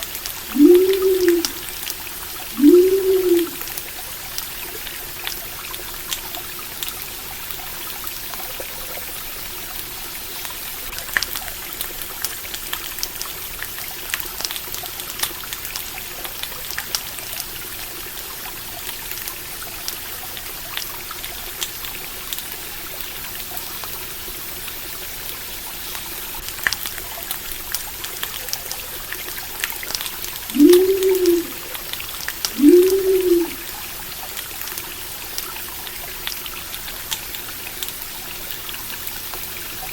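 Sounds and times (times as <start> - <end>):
stream trickling: 0.0 - 39.9
low hoots: 0.5 - 1.6, 2.5 - 3.7, 30.5 - 33.7.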